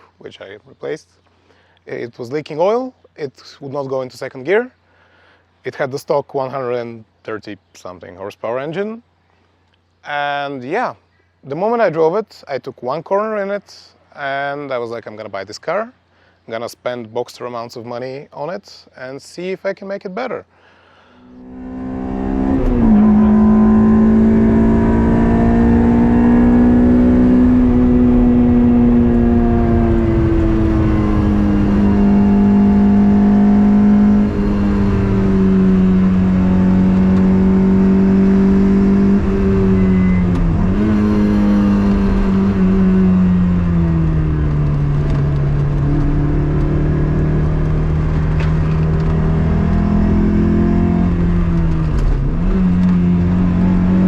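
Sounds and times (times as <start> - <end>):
car engine running hard: 21.4 - 54.0.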